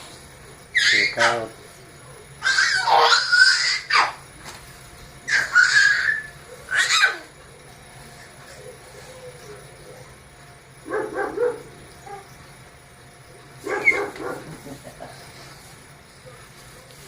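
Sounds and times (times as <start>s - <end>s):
dog barking: 10.8s - 12.3s, 13.6s - 14.6s.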